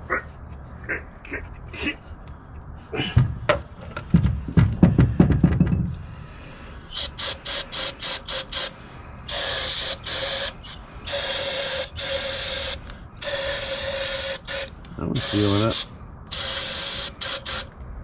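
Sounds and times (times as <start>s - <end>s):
low rough noise: 0.0s - 7.4s
air ratchet bursts: 6.9s - 17.8s.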